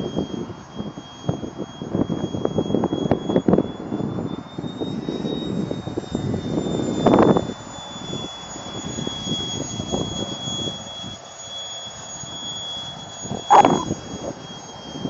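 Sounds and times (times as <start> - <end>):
electric ducted fan whining: 0.0 - 15.0
wind buffeting microphone: 13.2 - 15.0.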